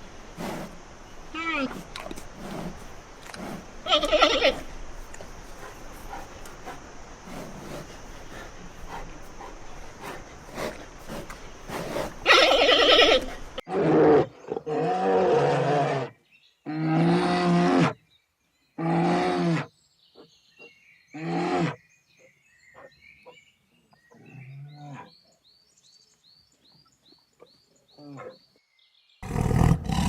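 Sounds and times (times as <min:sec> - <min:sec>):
small birds chirping: 0:00.0 - 0:13.6, 0:21.8 - 0:29.4
big cat roaring: 0:29.2 - 0:30.0.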